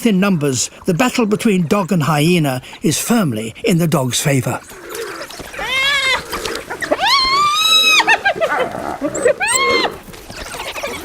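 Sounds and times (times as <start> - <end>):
wild dogs high-pitched cries: 4.6 - 11.0.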